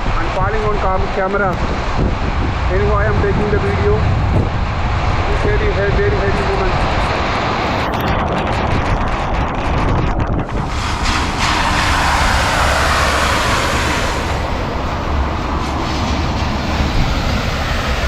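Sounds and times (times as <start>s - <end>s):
wind buffeting microphone: 0.0s - 18.0s
heavy rain pouring: 10.5s - 18.0s.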